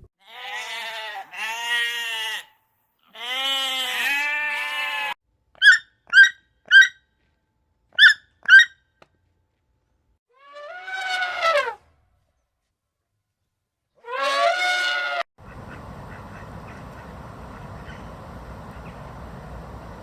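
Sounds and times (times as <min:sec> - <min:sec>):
goat bleating: 0:00.2 - 0:05.2.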